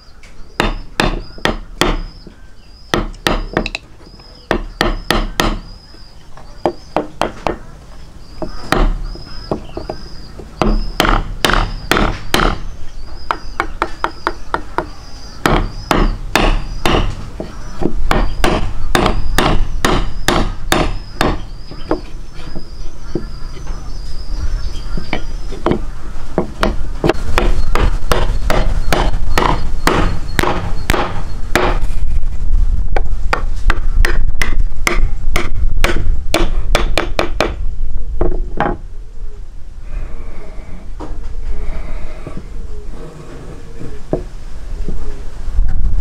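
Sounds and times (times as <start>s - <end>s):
sharp knocks: 2.9s - 3.8s, 4.5s - 5.7s, 8.4s - 12.6s, 13.3s - 23.3s, 25.0s - 31.9s, 33.0s - 37.6s.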